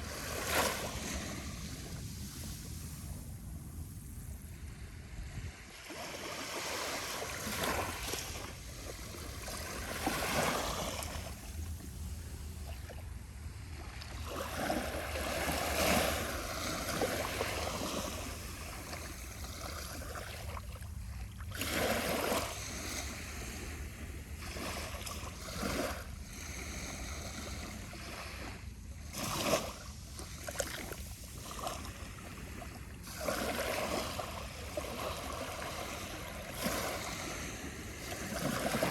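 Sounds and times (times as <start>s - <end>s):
small waves lapping on sand: 0.0s - 38.9s.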